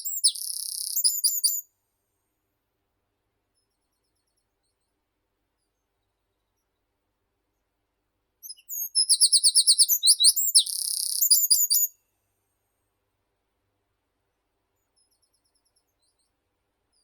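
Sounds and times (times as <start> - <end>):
songbird singing: 0.0 - 1.7, 8.4 - 12.0.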